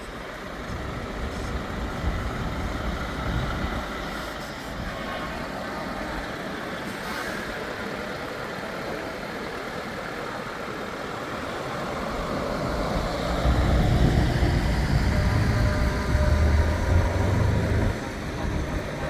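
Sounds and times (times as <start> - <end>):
road noise: 0.0 - 19.0
truck diesel engine passing: 11.2 - 19.0.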